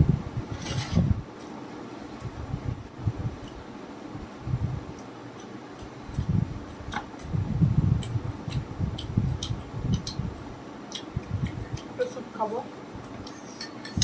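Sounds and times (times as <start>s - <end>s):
close-up chewing with mouth clicks: 7.9s - 10.3s, 10.9s - 12.0s.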